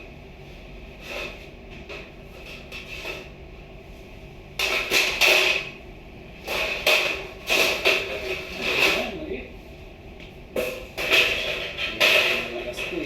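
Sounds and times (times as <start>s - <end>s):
hard objects knocking and clattering: 6.4s - 9.1s, 10.5s - 13.0s.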